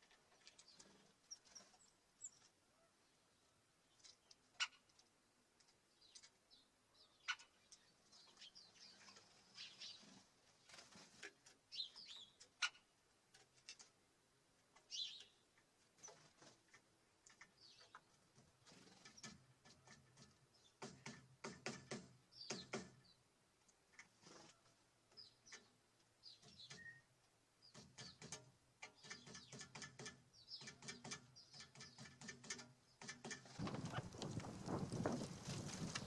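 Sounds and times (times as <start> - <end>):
small birds chirping: 0.1 - 13.9, 14.7 - 20.9, 22.3 - 36.0
clicks and taps at bird feeder: 16.7 - 18.1, 19.1 - 23.0, 27.7 - 34.8.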